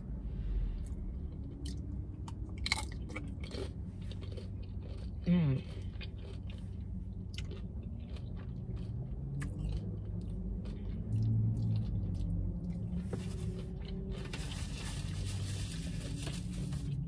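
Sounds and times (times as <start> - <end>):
steady low hum: 0.0 - 17.0
chewing with wet mouth clicks: 0.8 - 14.3.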